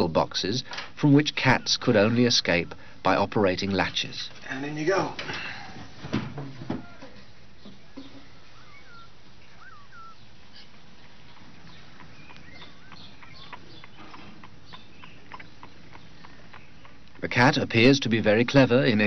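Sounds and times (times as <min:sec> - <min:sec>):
faint steady hiss: 0:00.0 - 0:19.0
small birds chirping: 0:06.8 - 0:19.0.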